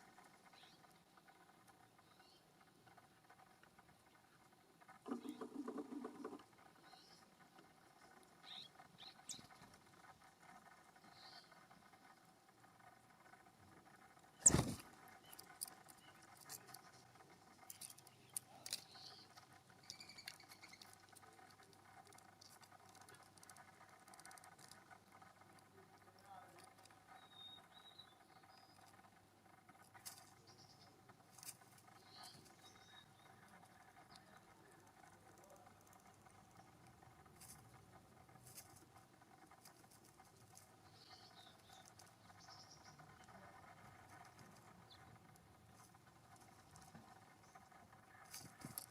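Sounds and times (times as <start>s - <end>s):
light clicks and ticks: 0.0s - 48.9s
distant bird calls: 14.2s - 16.7s, 40.8s - 45.2s.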